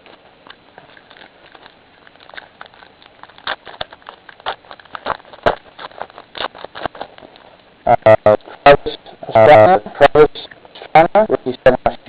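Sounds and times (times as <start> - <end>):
foil card pack crinkling: 0.0 - 7.8.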